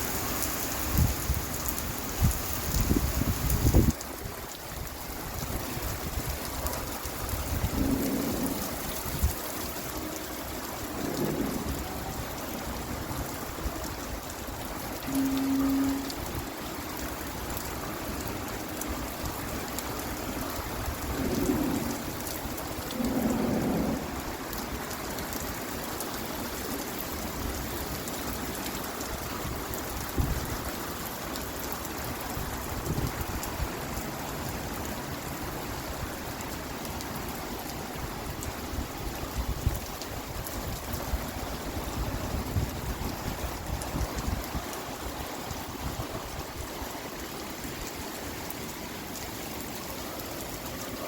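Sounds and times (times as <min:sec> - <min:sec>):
heavy rain falling: 0:00.0 - 0:51.0.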